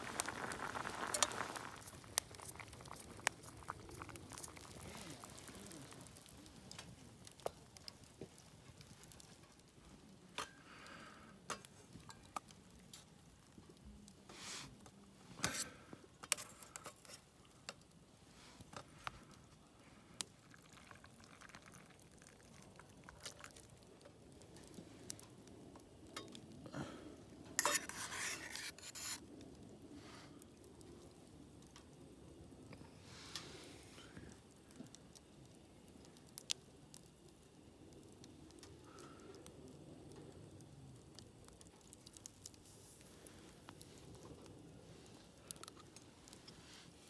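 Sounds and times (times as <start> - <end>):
utensils clinking and scraping: 27.6 - 29.2.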